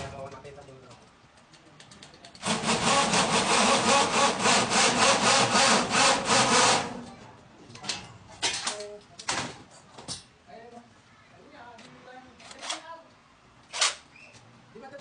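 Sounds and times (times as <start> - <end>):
impact drill rattling: 2.4 - 7.0.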